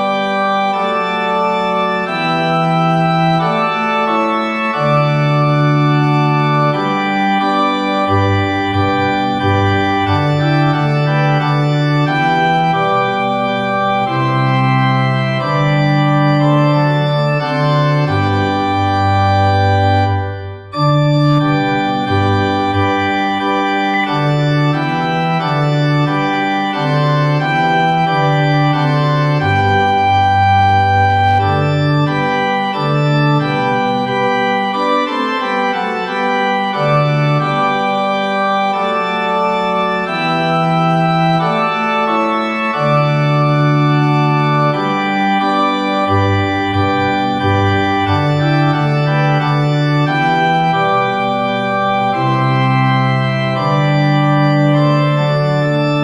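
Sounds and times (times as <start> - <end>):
organ playing a hymn: 0.0 - 56.0.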